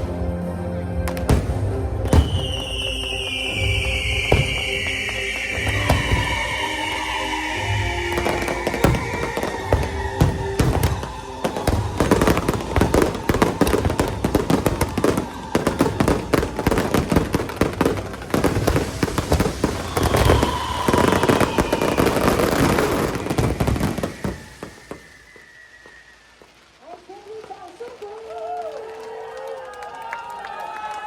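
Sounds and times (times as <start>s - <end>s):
fireworks crackling: 0.0s - 30.3s
whistling tone sliding downward: 2.0s - 26.8s.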